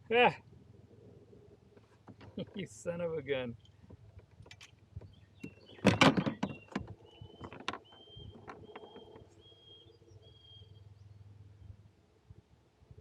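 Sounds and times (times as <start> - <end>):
knocks in a kayak: 5.0 - 9.1
short high-pitched squeaks: 5.5 - 9.9.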